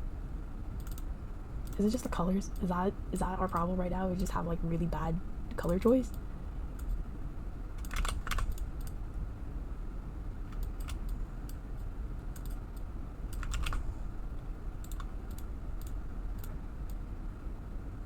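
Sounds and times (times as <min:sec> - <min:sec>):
steady low hum: 0:00.0 - 0:18.0
keyboard and mouse clicking: 0:00.8 - 0:01.8, 0:07.8 - 0:09.0, 0:10.5 - 0:11.6, 0:12.3 - 0:13.8, 0:14.8 - 0:17.0.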